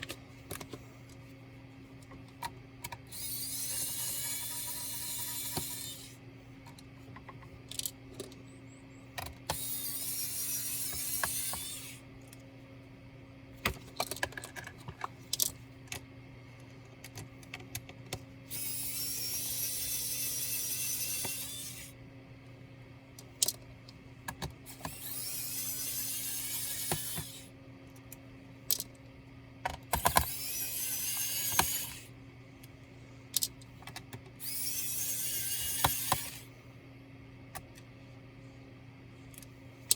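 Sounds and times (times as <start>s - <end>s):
electric screwdriver spinning: 3.1s - 6.1s, 9.5s - 12.0s, 18.5s - 21.9s, 24.7s - 27.5s, 30.0s - 32.1s, 34.4s - 36.5s.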